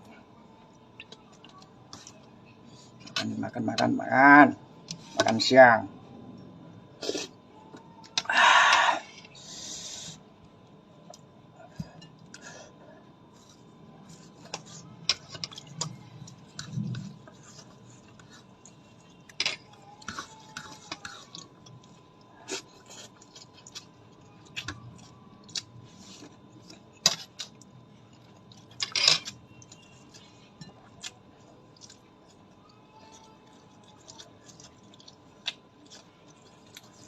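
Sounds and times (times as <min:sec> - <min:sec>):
cutlery and dishes clinking: 0:28.8 - 0:29.4.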